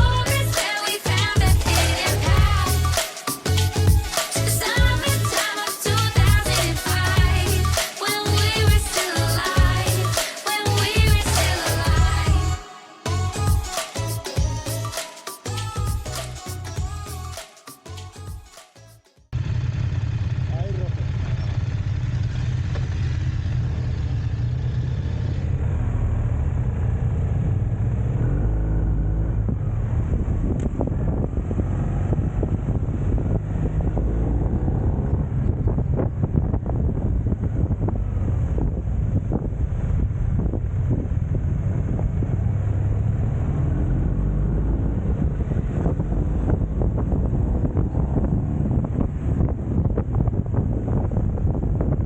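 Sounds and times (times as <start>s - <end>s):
motorcycle revving: 0.0s - 12.6s, 19.4s - 52.0s
motorcycle engines rumbling: 0.0s - 14.8s, 19.4s - 52.0s
wind buffeting microphone: 28.7s - 52.0s
faint rising engine-like note: 41.3s - 48.8s.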